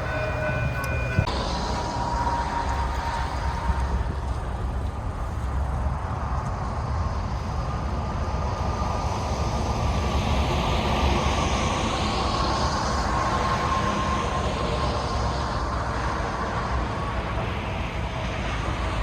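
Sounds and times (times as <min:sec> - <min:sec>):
faint steady tone: 0:00.0 - 0:05.8
train rolling hiss: 0:00.0 - 0:06.2
diesel locomotive rumble: 0:00.0 - 0:19.0.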